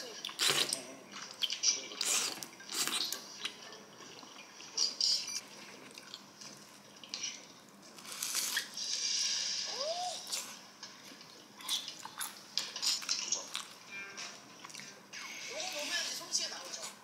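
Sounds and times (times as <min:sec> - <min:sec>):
crunching and chewing: 0:00.0 - 0:04.4, 0:05.6 - 0:08.8, 0:10.2 - 0:13.8.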